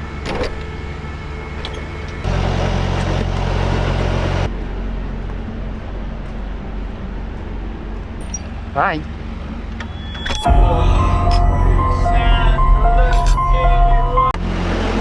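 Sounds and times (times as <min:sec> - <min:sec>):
diesel truck engine idling: 0:00.0 - 0:04.5
loud rushing noise: 0:10.5 - 0:15.0.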